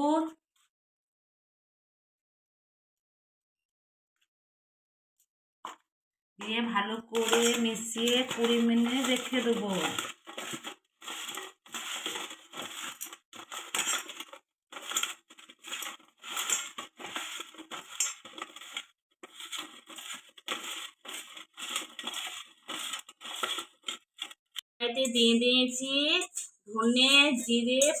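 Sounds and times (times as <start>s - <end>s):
mango pieces crunching and rustling: 8.2s - 24.4s.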